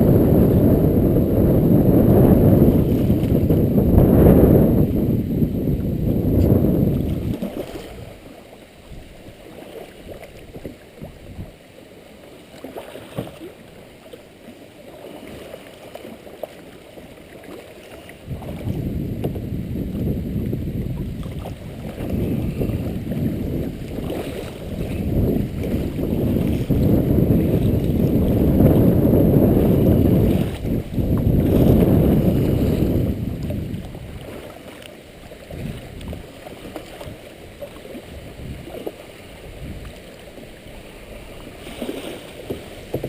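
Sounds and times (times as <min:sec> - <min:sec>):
wind buffeting microphone: 0:00.0 - 0:08.3, 0:10.1 - 0:11.6, 0:18.2 - 0:34.6, 0:35.2 - 0:43.0.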